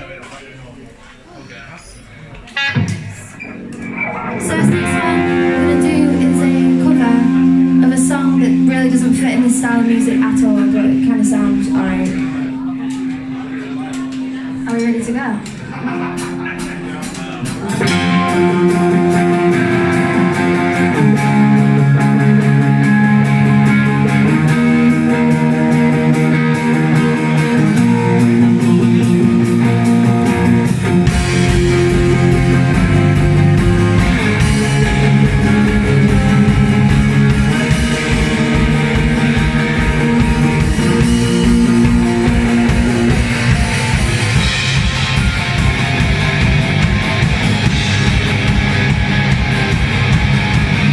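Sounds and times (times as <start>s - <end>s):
bass guitar: 2.5s - 50.9s
electric guitar chords: 2.5s - 50.9s
drum beat: 16.0s - 50.9s.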